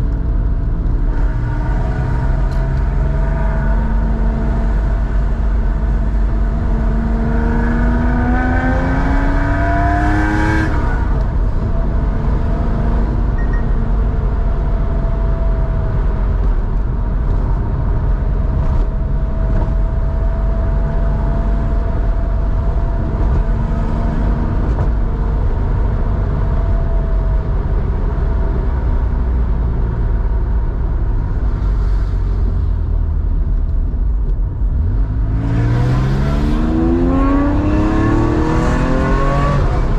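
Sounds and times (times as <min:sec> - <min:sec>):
car engine revving with exhaust rumble: 0:00.0 - 0:39.9.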